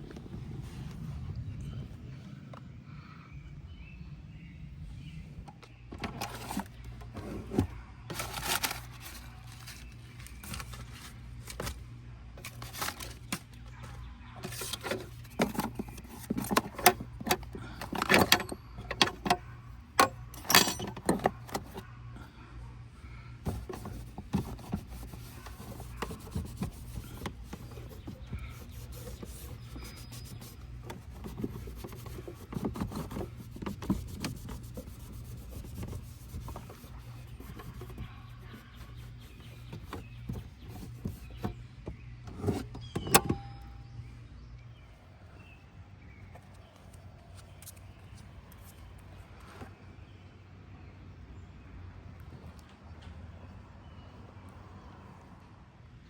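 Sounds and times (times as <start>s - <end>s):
hands clicking and knocking in car: 23.5s - 43.4s.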